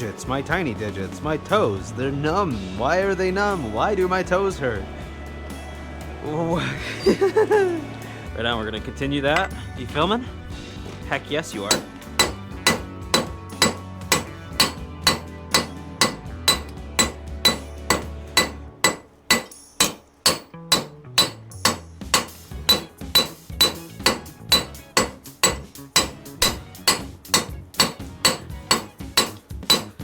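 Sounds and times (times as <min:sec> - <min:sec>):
hammer striking steel on anvil: 0:11.6 - 0:30.0.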